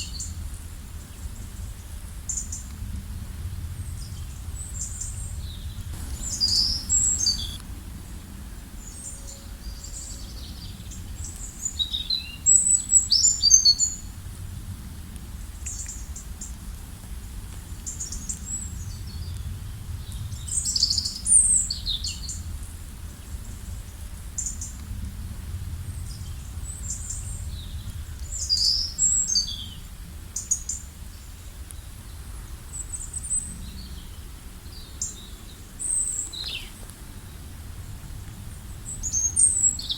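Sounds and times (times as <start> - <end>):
steady low rumble: 2.7 - 8.0
birds chirping and trilling: 5.7 - 7.6.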